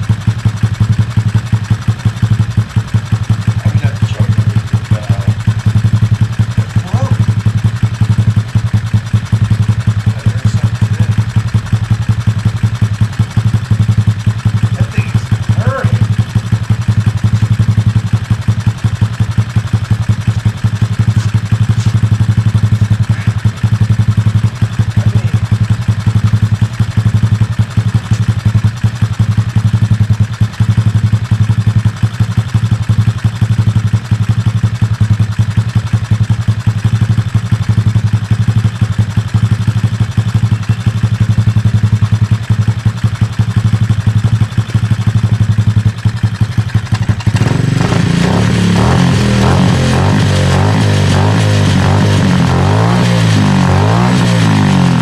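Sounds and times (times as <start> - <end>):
small engine idling: 0.0 - 55.0.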